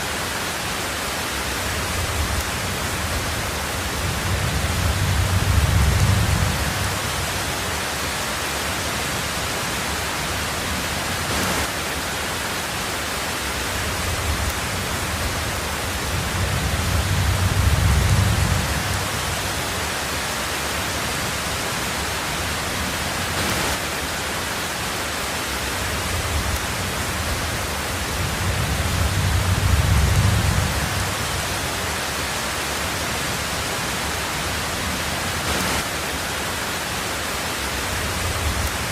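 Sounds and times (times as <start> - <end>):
heavy rain on a tin roof: 0.0 - 38.9
thunder rumbling: 1.6 - 7.8, 13.7 - 19.9, 26.0 - 31.8.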